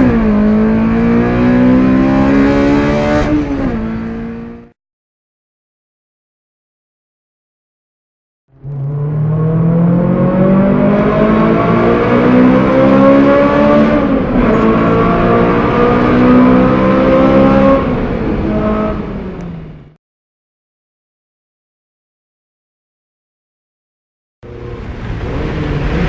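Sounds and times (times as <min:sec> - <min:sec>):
car engine accelerating hard: 0:00.0 - 0:04.7, 0:08.5 - 0:20.0, 0:24.4 - 0:26.0.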